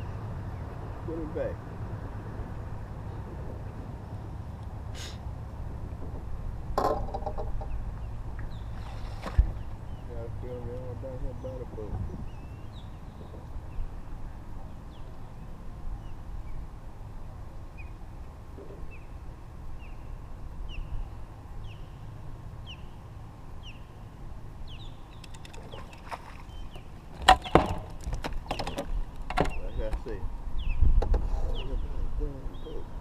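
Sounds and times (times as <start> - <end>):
low outdoor rumble: 0.0 - 33.0
sharp knocks: 6.8 - 7.7
bird chirping: 7.2 - 16.7, 18.6 - 27.9, 28.5 - 33.0.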